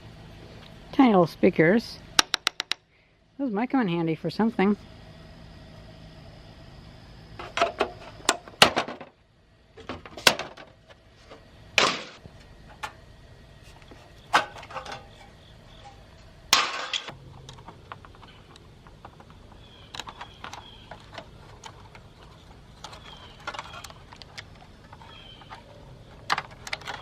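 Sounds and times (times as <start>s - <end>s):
plastic and metal parts clattering: 9.8s - 13.0s, 14.3s - 27.0s.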